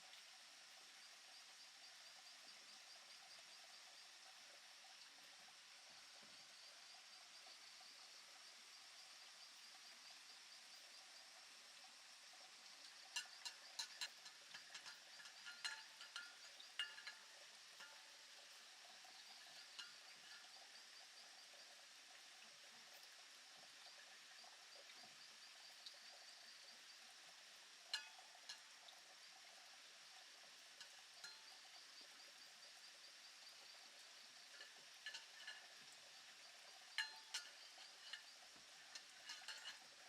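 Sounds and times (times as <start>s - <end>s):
faint high chirring: 12.7s - 21.6s, 27.9s - 28.8s, 30.8s - 40.0s.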